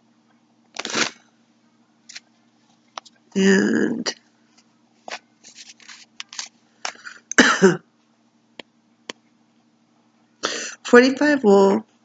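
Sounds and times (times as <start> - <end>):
person clearing throat: 7.3 - 7.9.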